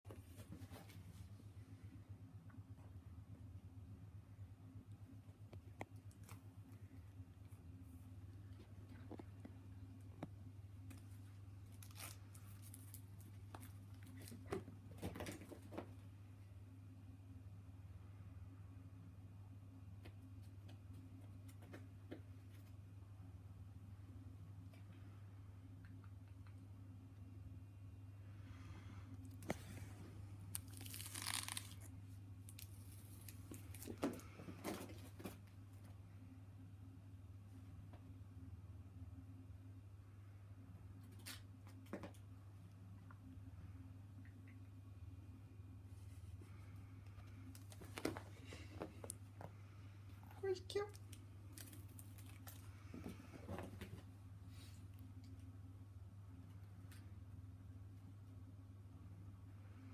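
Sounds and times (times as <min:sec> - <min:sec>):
steady low hum: 0:00.1 - 0:59.9
crinkly toy rustling: 0:10.9 - 0:15.8, 0:29.5 - 0:35.4.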